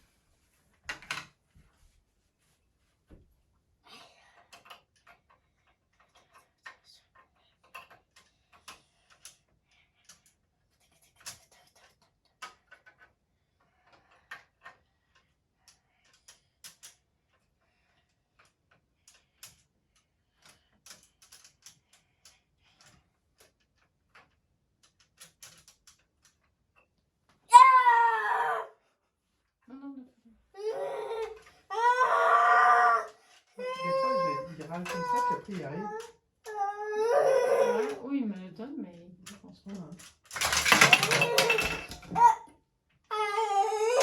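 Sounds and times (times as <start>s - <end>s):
small objects clicking and knocking: 33.4s - 36.6s, 39.2s - 42.4s.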